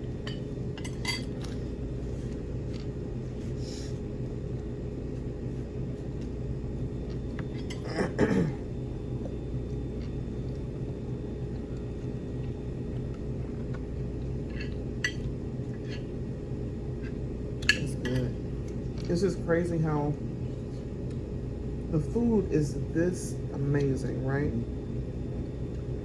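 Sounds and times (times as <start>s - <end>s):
low room hum: 0.0s - 26.0s
cutlery and dishes clinking: 0.3s - 1.3s.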